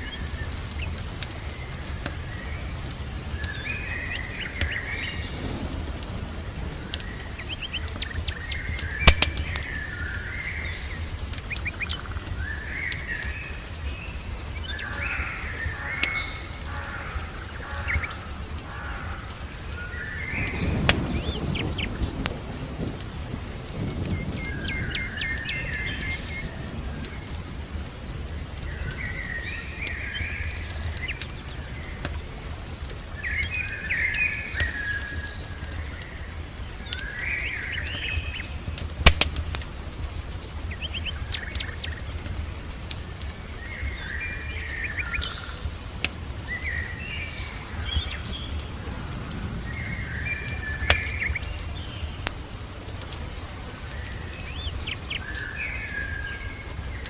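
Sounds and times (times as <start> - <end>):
fireplace crackling: 0.0 - 57.0
songbirds chirping: 0.0 - 57.0
steady low rumble: 0.0 - 57.0
sharp pops: 0.5 - 9.8, 27.0 - 45.2.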